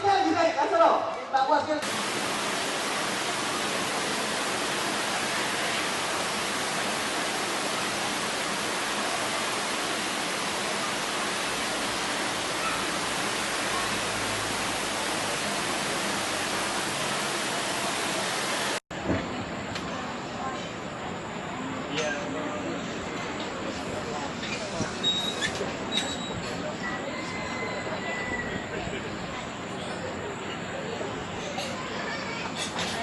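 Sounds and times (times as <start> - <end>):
rushing water: 1.8 - 18.8.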